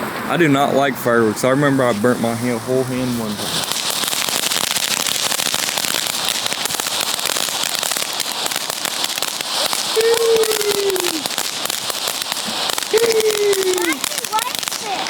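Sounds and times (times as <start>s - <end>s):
firework crackling and fizzing: 0.0s - 15.0s
falling tone: 0.3s - 4.8s, 9.8s - 11.4s.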